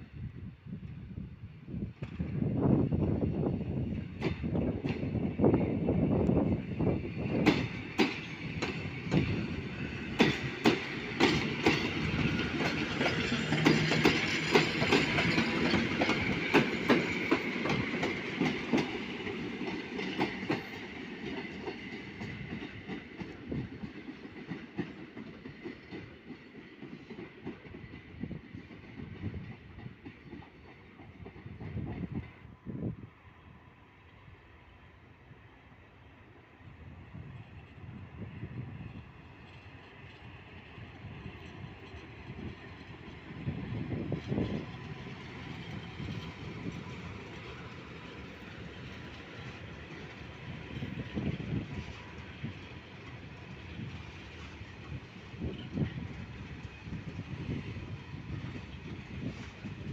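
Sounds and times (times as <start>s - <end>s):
train rumble: 0.0s - 59.9s
train wheels clicking over rail joints: 4.0s - 32.4s.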